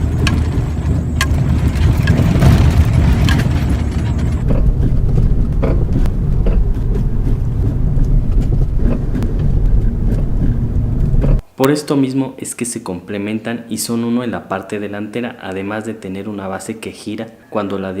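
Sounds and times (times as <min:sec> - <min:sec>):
car driving over rough ground: 0:00.0 - 0:11.4
suspension knocks and rattles: 0:00.0 - 0:11.4.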